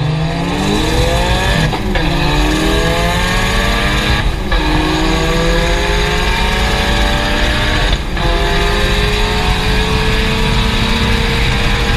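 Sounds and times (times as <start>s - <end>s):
race car engine at full throttle: 0.0s - 11.9s.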